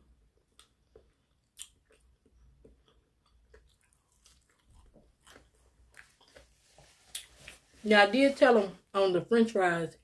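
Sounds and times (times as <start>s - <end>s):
faint chewing mouth clicks: 0.4s - 6.5s.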